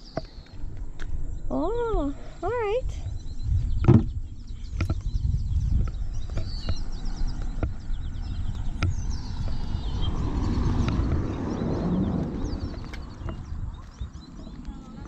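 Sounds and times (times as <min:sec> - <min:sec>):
birds chirping: 0:00.0 - 0:15.0
wind rumble: 0:00.0 - 0:15.0
microphone handling noise: 0:03.1 - 0:11.4.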